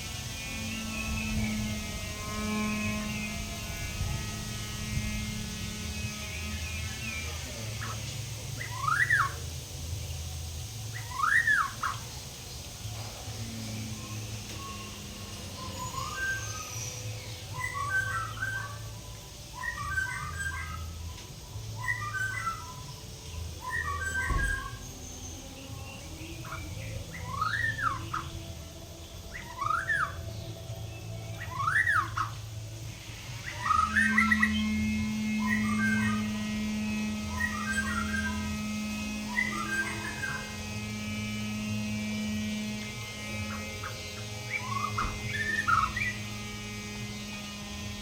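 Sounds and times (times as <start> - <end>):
electrical hum: 0.0 - 48.0
bird chirpy phrases: 6.4 - 9.6
whistled bird sweeps: 23.6 - 24.9.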